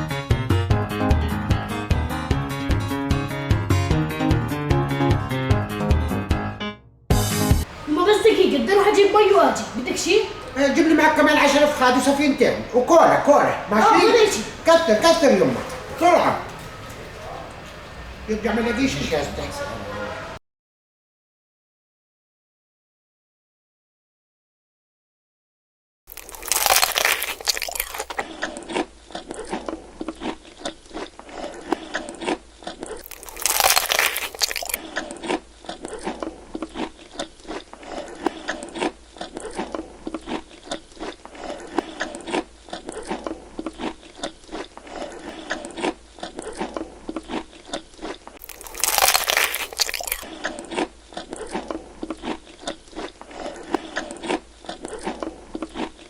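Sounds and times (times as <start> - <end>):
chewing crispy fried chicken: 8.8 - 19.0, 26.1 - 56.0.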